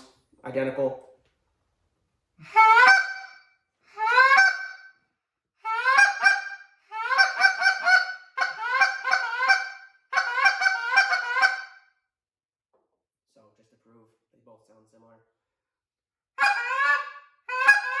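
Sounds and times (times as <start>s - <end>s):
goose call honks: 5.7s - 11.7s, 16.4s - 18.0s.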